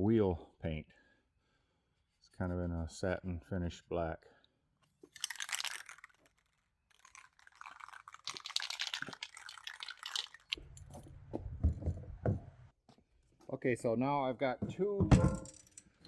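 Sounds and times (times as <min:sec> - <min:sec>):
crinkly rustling: 0:05.1 - 0:11.9
knocks of objects set down: 0:10.8 - 0:12.5, 0:14.6 - 0:15.8.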